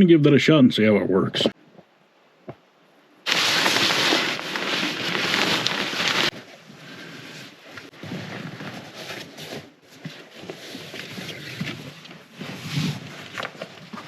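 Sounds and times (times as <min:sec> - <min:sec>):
packaging rustling: 0:03.3 - 0:06.5.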